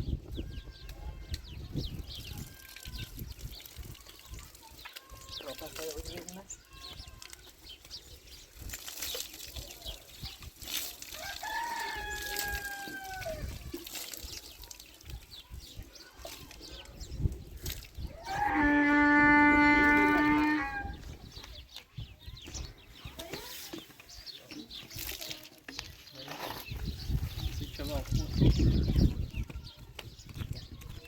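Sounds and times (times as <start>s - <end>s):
rooster crowing: 11.2s - 13.4s.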